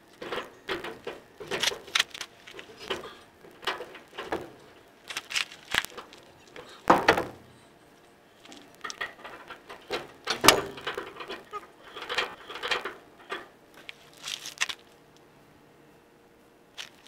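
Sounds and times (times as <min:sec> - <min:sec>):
hand tools clicking and knocking: 0:00.2 - 0:07.0, 0:08.5 - 0:13.5.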